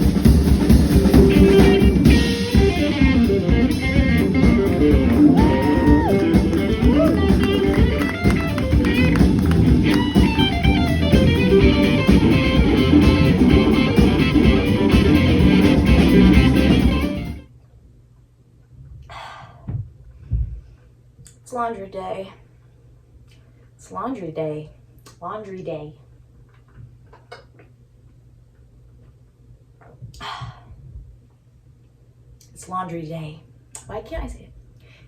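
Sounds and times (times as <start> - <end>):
upbeat band music: 0.0 - 17.4.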